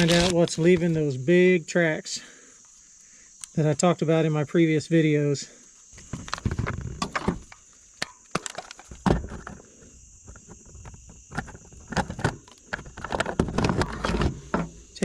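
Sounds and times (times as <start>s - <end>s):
shrink wrap crinkling and tearing: 0.0s - 0.6s
plastic clicks and knocks: 10.3s - 14.7s.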